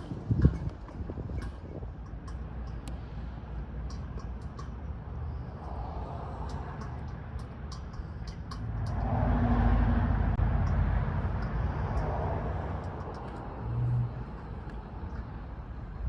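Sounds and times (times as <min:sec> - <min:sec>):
motor vehicle driving past: 0:08.6 - 0:15.2.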